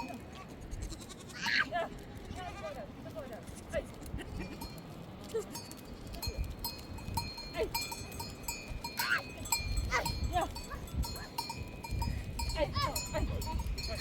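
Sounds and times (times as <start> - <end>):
animal bells clinking: 0.0 - 0.3, 4.3 - 14.0
sheep and goats bleating: 0.0 - 2.8, 7.2 - 14.0.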